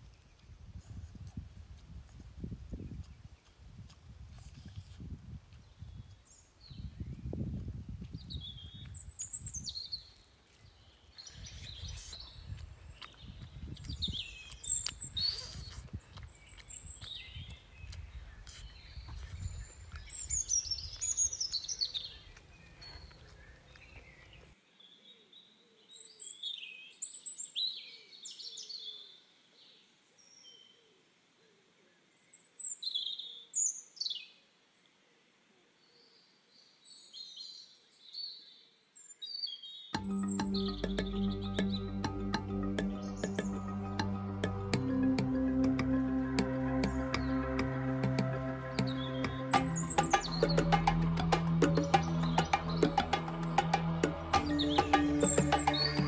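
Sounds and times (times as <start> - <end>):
birds chirping: 40.0 - 56.0
low rumbling noise: 40.0 - 56.0.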